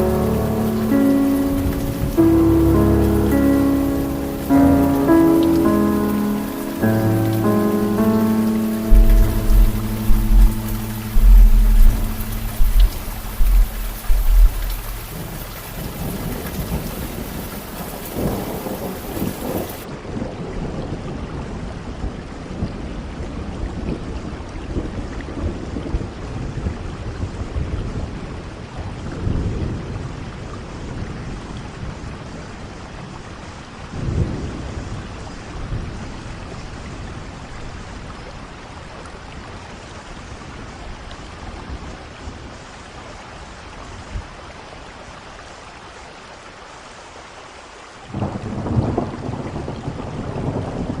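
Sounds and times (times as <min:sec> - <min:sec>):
low rolling thunder: 0:00.0 - 0:23.9, 0:48.1 - 0:51.0
steady rainfall: 0:00.0 - 0:51.0.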